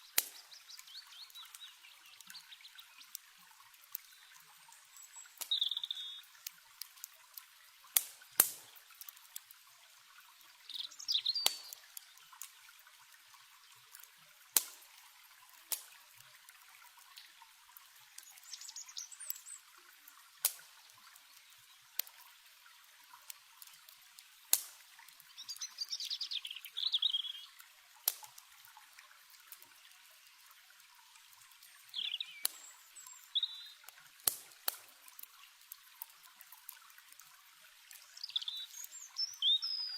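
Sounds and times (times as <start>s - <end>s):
small birds chirping: 0.0s - 6.5s, 10.5s - 12.5s, 18.0s - 19.9s, 25.2s - 27.6s, 31.6s - 33.9s, 37.9s - 39.9s
campfire crackling and popping: 0.0s - 39.7s
river running: 0.0s - 39.9s.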